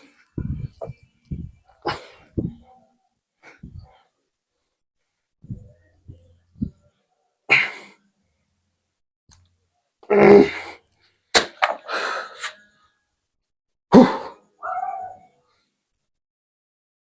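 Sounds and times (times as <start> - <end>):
person grunting: 10.1 - 10.8, 13.9 - 14.4.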